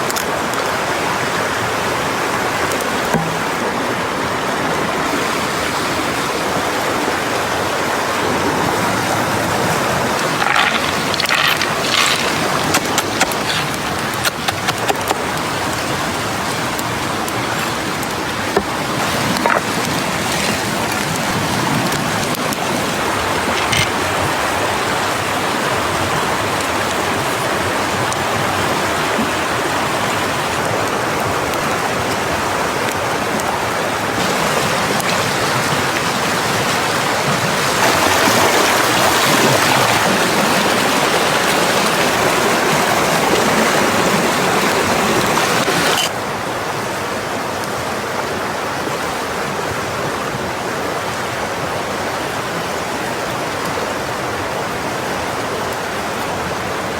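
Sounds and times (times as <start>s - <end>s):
rushing water: 0.0s - 56.9s
sharp clicks: 10.2s - 15.2s.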